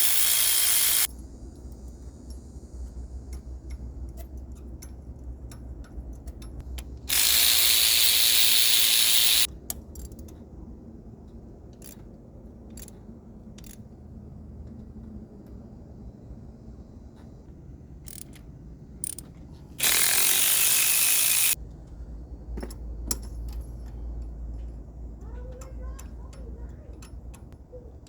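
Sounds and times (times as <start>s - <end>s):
hand ratchet clicking: 0.0s - 1.1s, 3.7s - 10.1s, 19.0s - 21.6s.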